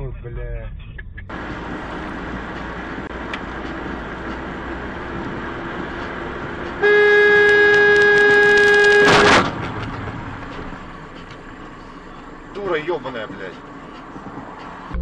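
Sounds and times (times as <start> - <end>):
car road noise: 0.0 - 15.0
car horn blast: 6.7 - 9.6.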